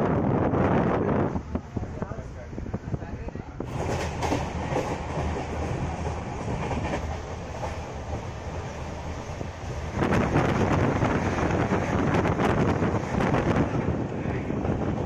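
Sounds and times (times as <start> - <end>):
train wheels clattering over rail joints: 3.6 - 12.0.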